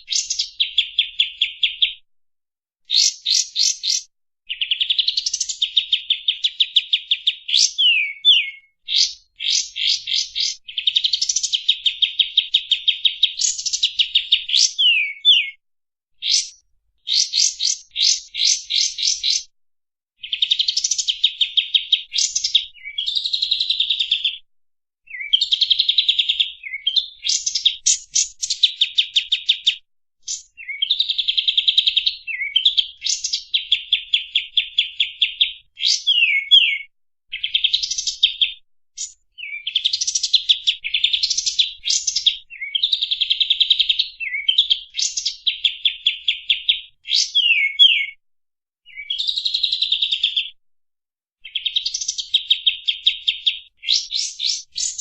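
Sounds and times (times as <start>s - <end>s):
songbird singing sharp notes: 0.1s - 2.0s, 2.9s - 15.6s, 16.2s - 19.5s, 25.1s - 43.0s, 44.1s - 48.2s.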